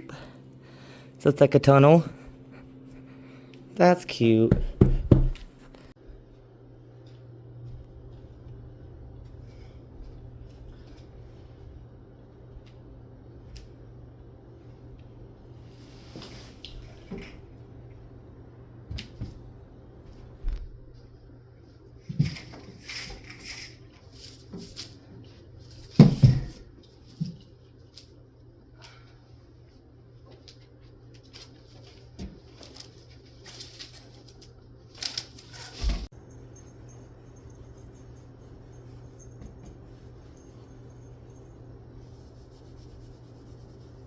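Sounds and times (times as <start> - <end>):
steady low hum: 0.0 - 44.0
cat rustling and scratching: 31.1 - 36.0, 39.8 - 44.0
faint scratching and rubbing: 42.0 - 44.0.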